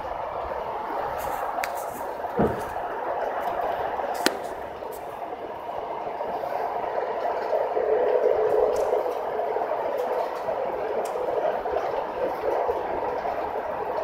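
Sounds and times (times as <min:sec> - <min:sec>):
electric train rumble: 0:00.0 - 0:14.0
knock: 0:02.4 - 0:02.7.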